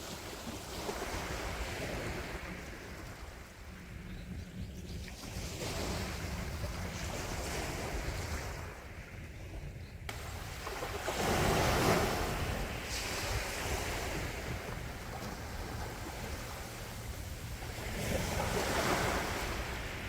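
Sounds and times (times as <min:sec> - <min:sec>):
sea waves washing onto shore: 0:10.1 - 0:20.0.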